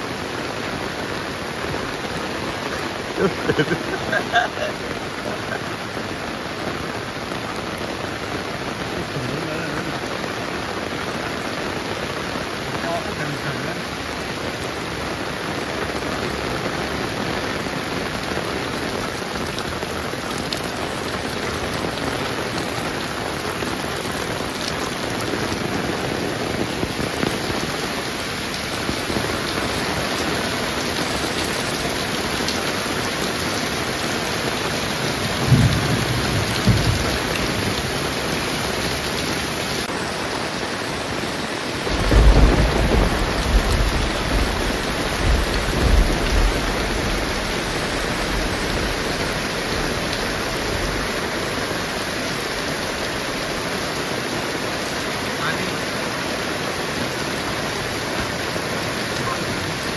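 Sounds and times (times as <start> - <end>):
heavy rain falling: 0.0 - 59.9
low thunder rumbles: 35.1 - 39.0, 41.8 - 51.2.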